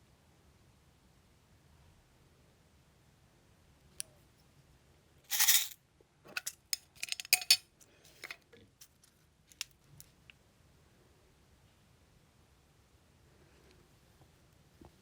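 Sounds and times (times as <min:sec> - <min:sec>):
scraping rustle of small objects: 0:05.3 - 0:09.1.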